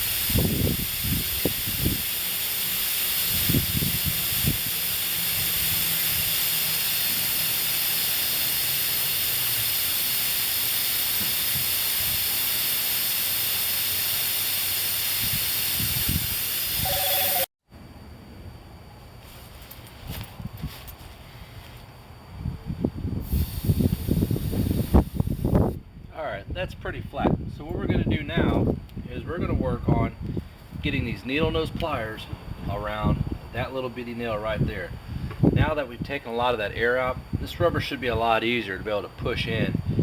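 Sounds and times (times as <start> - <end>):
air hissing from tire valve: 0.0 - 17.5, 23.2 - 25.8, 34.9 - 35.6.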